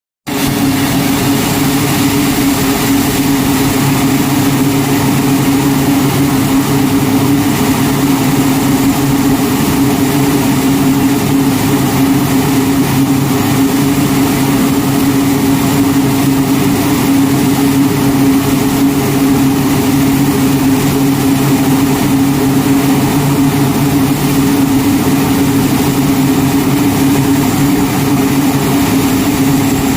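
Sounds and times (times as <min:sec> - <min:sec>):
turboprop engines droning: 0:00.3 - 0:29.9.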